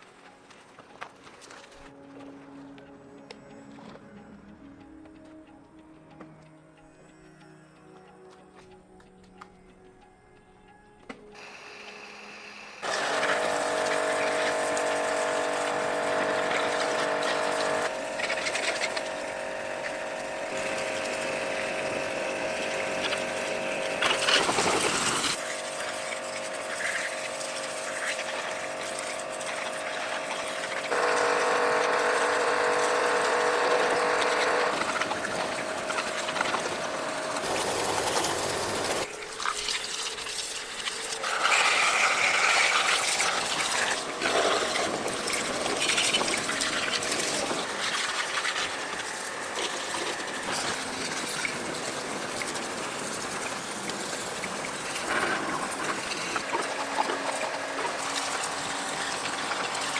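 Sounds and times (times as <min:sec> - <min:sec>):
pressure washer motor whine: 0:11.4 - 0:59.9
water spray hissing: 0:12.8 - 0:59.9.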